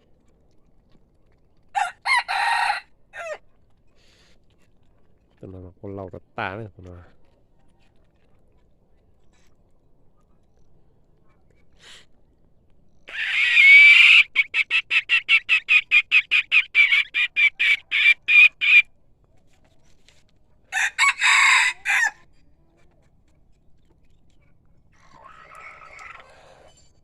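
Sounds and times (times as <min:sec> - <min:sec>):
rooster crowing: 0:01.8 - 0:03.4, 0:20.7 - 0:22.3.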